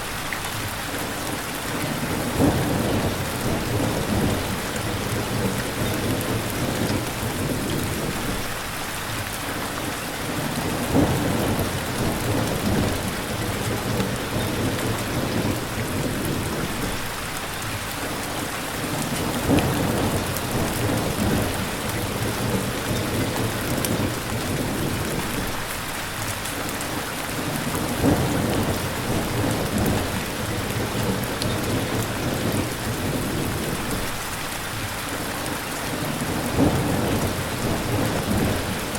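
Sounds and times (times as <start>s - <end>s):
heavy rain: 0.0s - 38.9s
rolling thunder: 2.0s - 8.6s, 10.5s - 17.0s, 19.2s - 25.7s, 27.5s - 34.2s, 36.2s - 38.9s.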